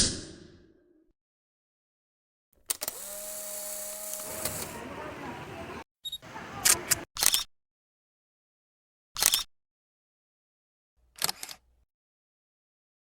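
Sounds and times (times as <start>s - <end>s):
camera shutter clicks: 2.7s - 4.8s.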